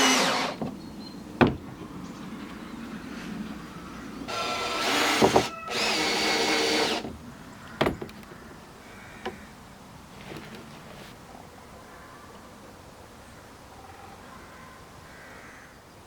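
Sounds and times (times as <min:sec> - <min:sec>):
cordless drill running: 0:00.0 - 0:00.6, 0:04.3 - 0:07.1
sharp knocks: 0:01.4 - 0:01.9, 0:04.3 - 0:08.3.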